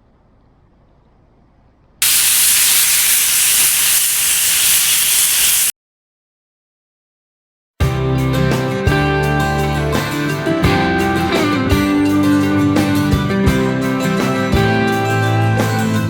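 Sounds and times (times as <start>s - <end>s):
loud even hiss: 2.0s - 5.7s.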